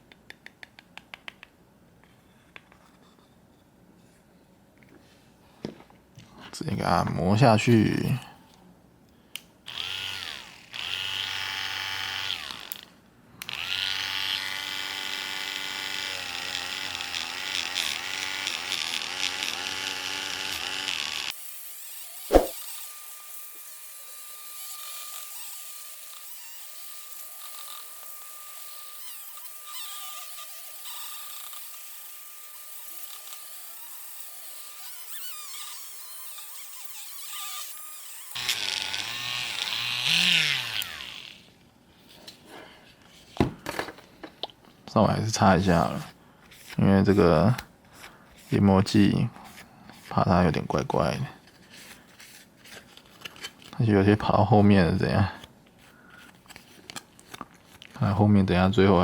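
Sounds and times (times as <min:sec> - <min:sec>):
rotary tool polishing plastic: 0:09.7 - 0:41.5, 0:48.0 - 0:53.8
sharp click: 0:22.3 - 0:22.6.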